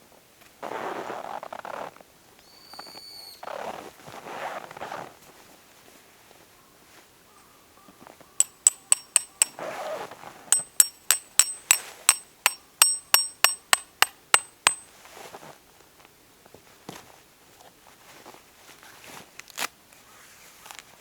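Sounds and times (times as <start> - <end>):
hammer striking metal tent peg: 8.4 - 9.8, 10.5 - 14.9.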